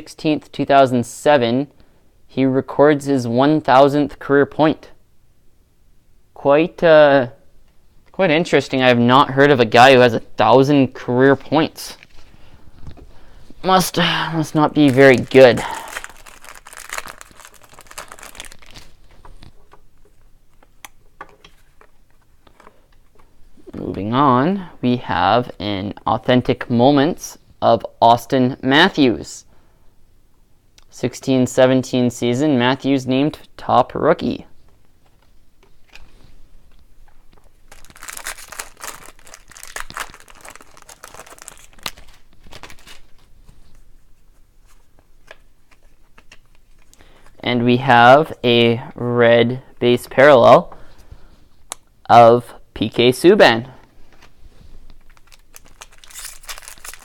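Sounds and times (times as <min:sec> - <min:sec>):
foil wrapper crinkling: 0:14.6 - 0:19.5, 0:37.7 - 0:43.3, 0:55.0 - 0:57.0
cards clicking and shuffling: 0:14.8 - 0:23.3, 0:37.7 - 0:43.3, 0:44.6 - 0:47.0, 0:54.9 - 0:57.0.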